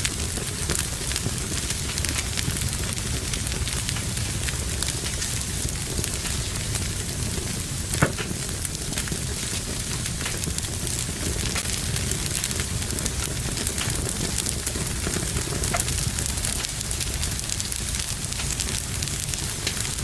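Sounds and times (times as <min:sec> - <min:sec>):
fire crackling: 0:00.0 - 0:20.0.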